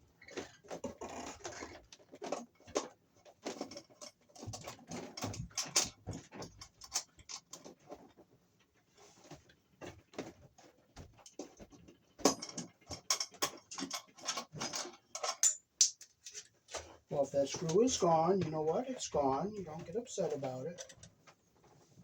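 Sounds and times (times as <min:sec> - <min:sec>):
clicks and taps of tools: 0:11.0 - 0:16.9.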